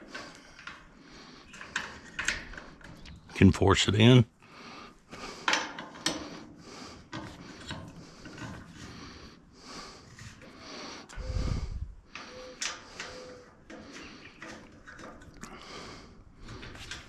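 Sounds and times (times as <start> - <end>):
parts clicking and scraping: 0.0 - 3.4, 5.1 - 17.0.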